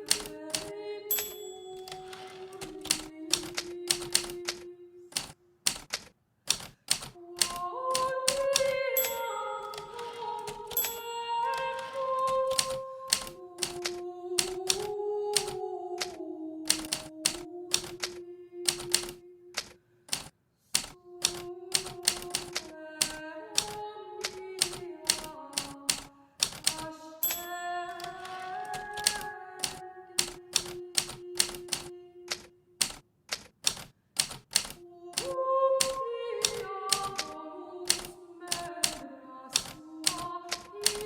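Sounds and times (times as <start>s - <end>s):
typewriter keys striking: 0.0s - 41.0s
slow background melody: 8.6s - 13.1s.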